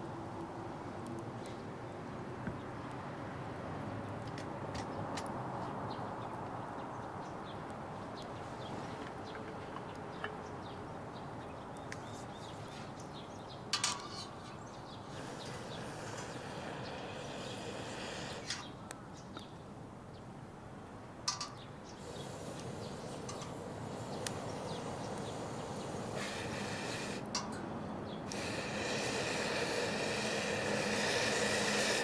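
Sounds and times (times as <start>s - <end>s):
wood fire crackling: 22.0s - 27.2s.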